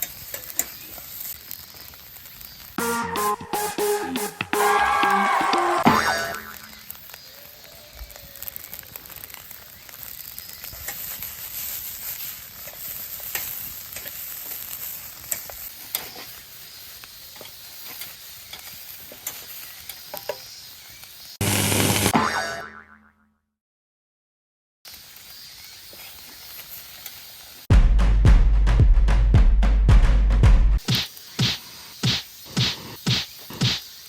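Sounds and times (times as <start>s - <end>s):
rice sizzling in a pan: 0.0s - 2.8s, 6.3s - 22.1s, 24.9s - 27.7s, 30.8s - 34.0s.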